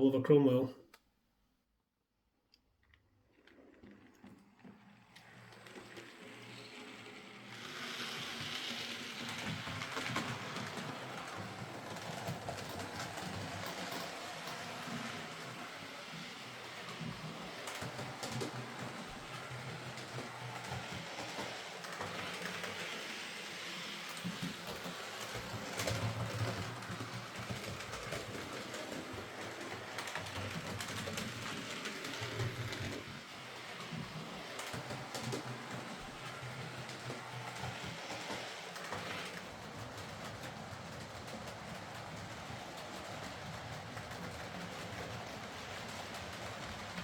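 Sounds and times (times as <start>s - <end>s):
wheels clicking on rails: 2.8s - 47.0s
model train motor hum: 3.3s - 47.0s.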